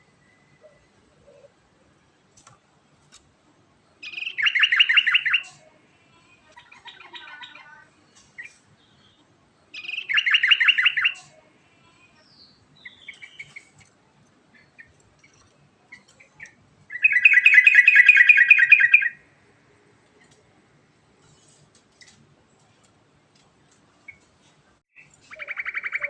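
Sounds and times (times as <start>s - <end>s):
bird bubbling song: 9.8s - 11.2s, 14.5s - 19.2s, 25.0s - 26.0s.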